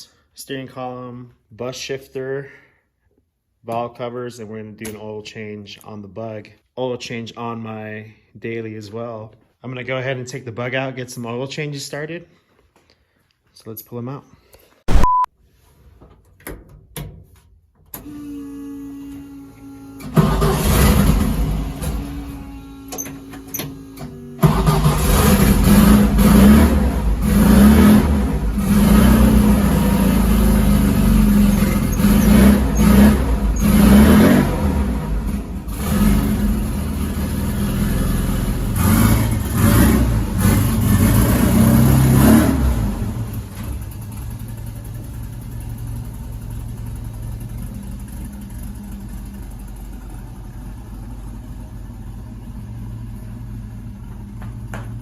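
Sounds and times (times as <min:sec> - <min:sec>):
car engine starting and revving: 0:20.0 - 0:54.0.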